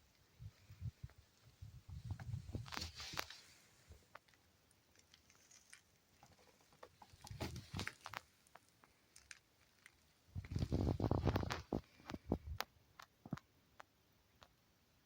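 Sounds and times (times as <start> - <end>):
small objects clicking and tapping: 4.1 - 14.5.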